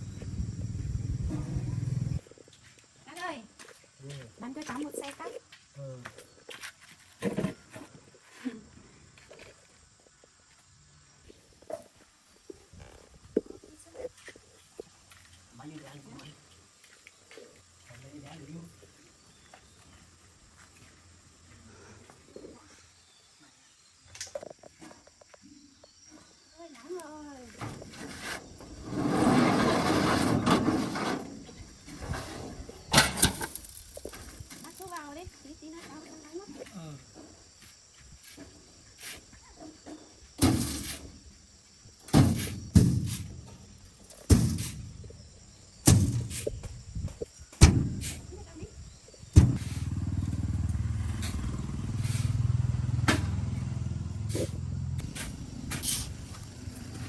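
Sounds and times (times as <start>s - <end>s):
farm vehicle engine running: 0.0s - 2.2s, 49.4s - 57.0s
rough scraping rustle: 27.5s - 35.2s, 40.4s - 41.2s, 51.1s - 52.5s, 54.3s - 57.0s
sharp knocks: 49.4s - 49.7s.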